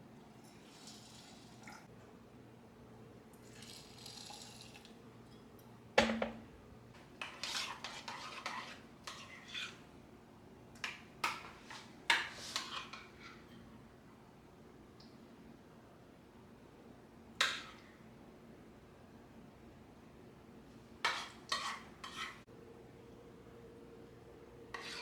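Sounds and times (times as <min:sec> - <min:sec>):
dishes clattering and scraping: 0:05.2 - 0:06.4, 0:07.2 - 0:09.8, 0:10.8 - 0:13.7, 0:21.0 - 0:22.5
solid knock of dishes: 0:06.0 - 0:06.5.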